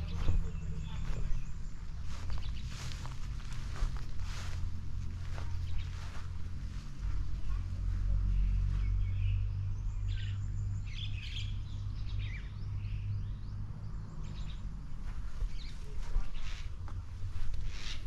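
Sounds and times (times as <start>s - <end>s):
birds chirping: 0.0s - 18.0s
low steady rumble: 0.0s - 18.0s.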